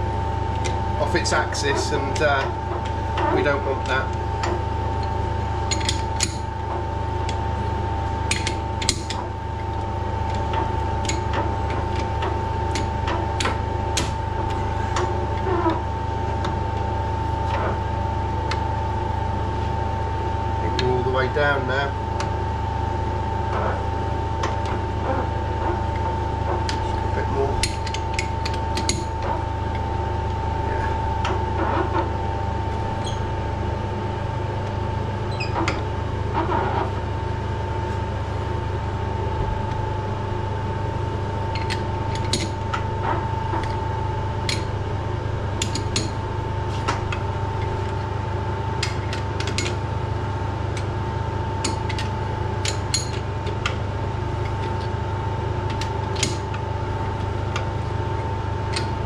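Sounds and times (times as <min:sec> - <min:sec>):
metal lathe whining: 0:00.0 - 0:19.9
low hum: 0:00.0 - 0:59.0.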